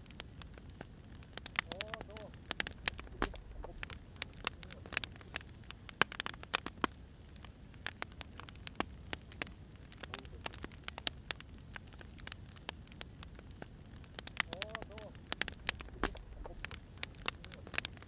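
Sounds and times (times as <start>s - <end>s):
fire rumbling and hissing: 0.0s - 18.0s
firewood crackling and popping: 0.0s - 18.0s.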